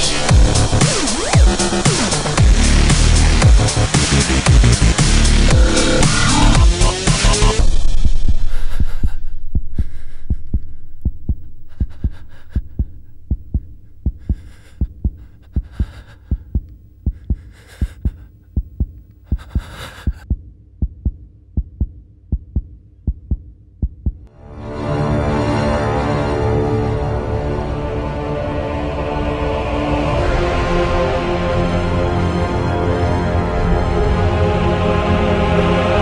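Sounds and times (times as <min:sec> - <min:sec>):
heartbeat thumps: 0:05.5 - 0:24.3.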